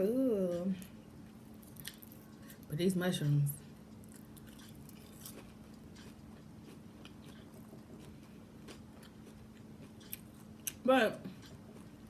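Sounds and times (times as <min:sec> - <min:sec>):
person chewing: 0:01.6 - 0:02.5, 0:04.0 - 0:12.0.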